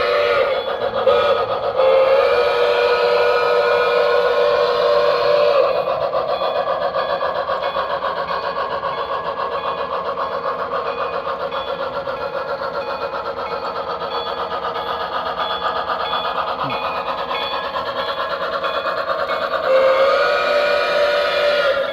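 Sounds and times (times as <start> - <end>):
steam whistle blast: 0.0 - 6.0, 19.6 - 21.9
steam locomotive chuffing: 0.0 - 21.9.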